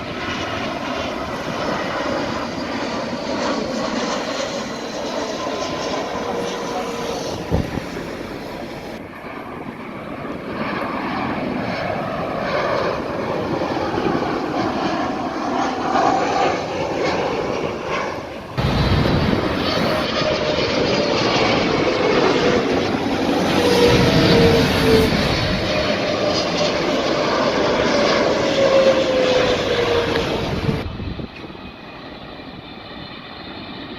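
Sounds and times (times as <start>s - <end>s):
jet engines passing low: 0.0s - 33.9s.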